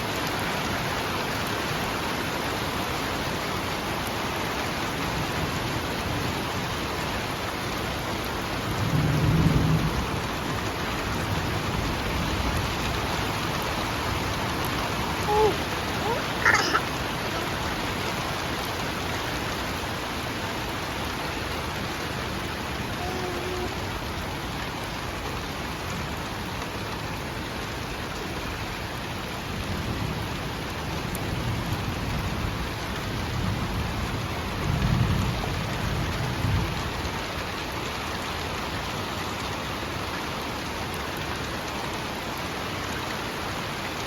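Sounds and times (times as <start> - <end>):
steady rain falling: 0.0 - 44.0
low rumble of thunder: 8.6 - 15.2, 29.6 - 37.0.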